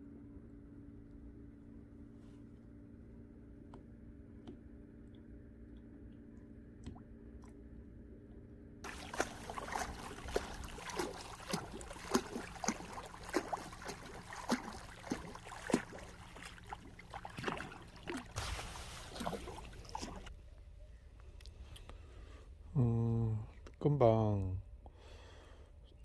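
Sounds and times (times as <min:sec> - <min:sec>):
small splashes and plops: 0:08.8 - 0:20.3
seawater lapping and sloshing: 0:08.8 - 0:20.4.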